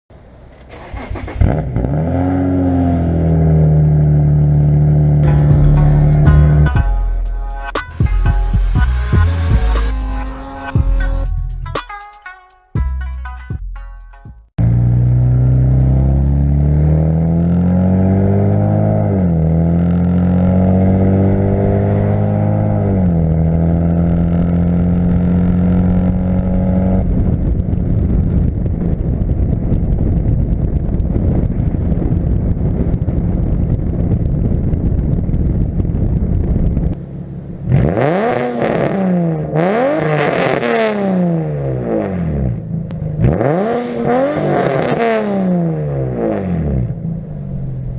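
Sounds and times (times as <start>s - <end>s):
car exhaust note revving: 1.4s - 12.2s, 12.8s - 36.3s.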